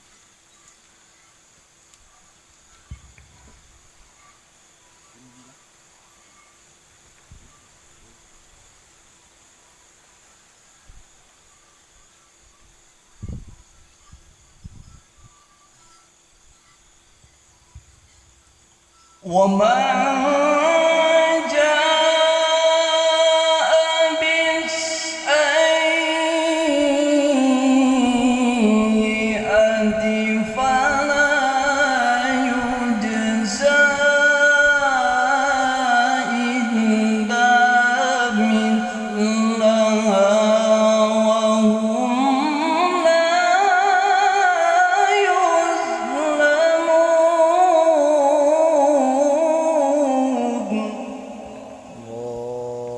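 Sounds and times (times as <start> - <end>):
man chanting melodically: 19.2 - 52.9.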